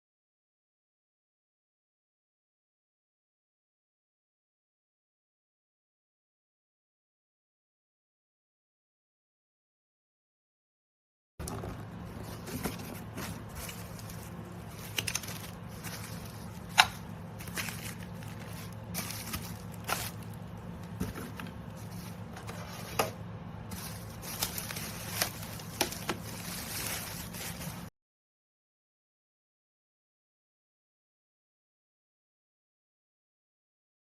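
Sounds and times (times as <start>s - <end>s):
clicks crackles and scrapes: 11.4s - 27.9s.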